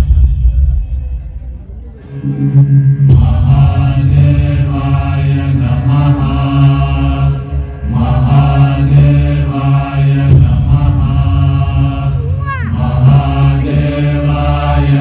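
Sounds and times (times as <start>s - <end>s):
music with low drone: 0.0s - 15.0s
voices chanting: 1.8s - 15.0s.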